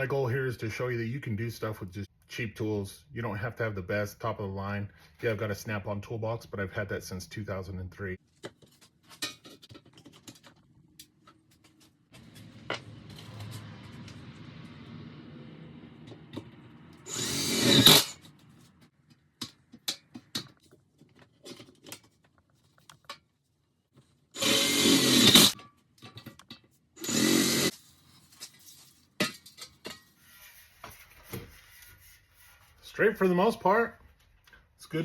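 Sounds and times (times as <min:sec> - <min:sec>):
tool handling clicks and knocks: 0:08.3 - 0:14.1, 0:18.2 - 0:23.4, 0:25.6 - 0:27.0
power drill drilling metal: 0:17.0 - 0:18.2, 0:24.4 - 0:25.6, 0:27.0 - 0:27.7.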